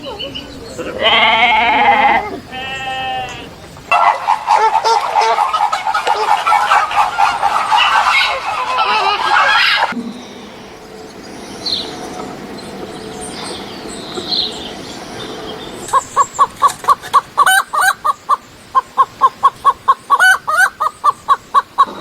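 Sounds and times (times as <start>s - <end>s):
bird calling in rapid notes: 3.9s - 10.0s, 15.9s - 22.0s.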